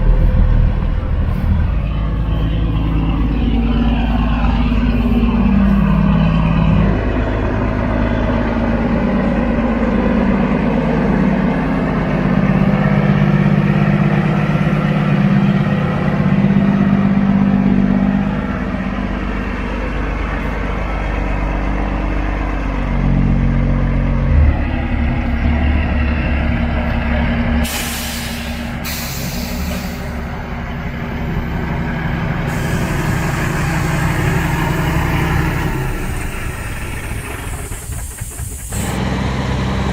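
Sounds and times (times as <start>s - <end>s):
truck engines running: 0.0s - 39.9s
air brake hisses: 27.6s - 30.2s, 32.4s - 34.3s.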